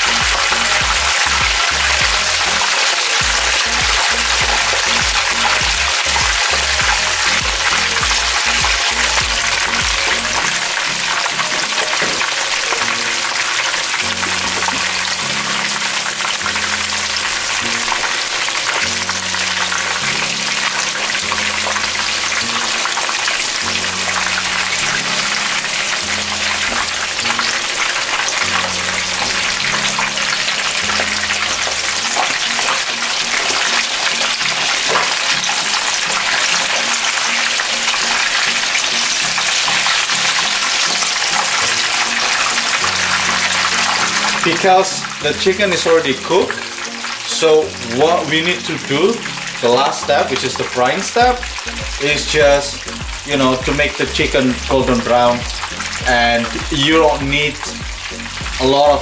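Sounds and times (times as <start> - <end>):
background music with bass line: 0.0 - 59.0
oil sizzling: 0.0 - 59.0.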